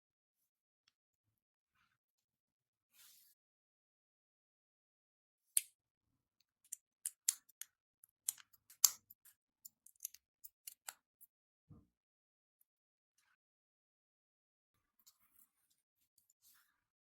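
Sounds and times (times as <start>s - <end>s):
plastic pieces clicking together: 8.3s - 11.0s.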